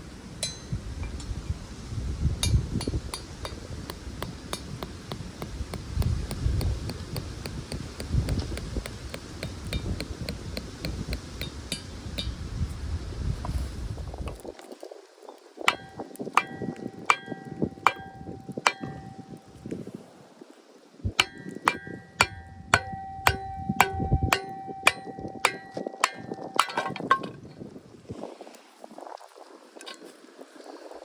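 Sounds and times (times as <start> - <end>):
hammer striking metal tool: 0.4 - 1.3, 2.4 - 12.4, 15.7 - 19.6, 21.2 - 27.3.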